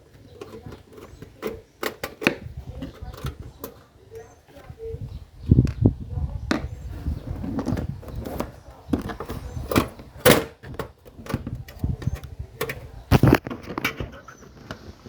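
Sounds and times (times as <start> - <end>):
hand tools clicking and knocking: 0.0 - 4.6, 8.1 - 14.2.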